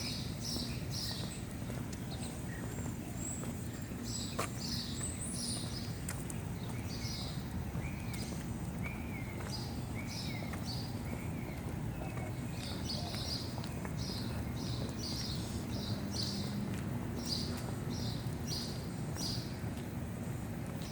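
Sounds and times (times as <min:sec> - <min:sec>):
birds chirping: 0:00.0 - 0:16.6.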